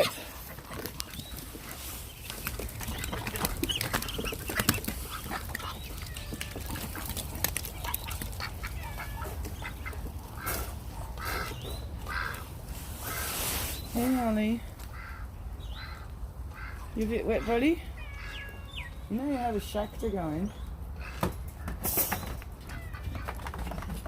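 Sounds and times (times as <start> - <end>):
ducks quacking: 2.6 - 13.4, 14.9 - 18.5, 21.0 - 21.4.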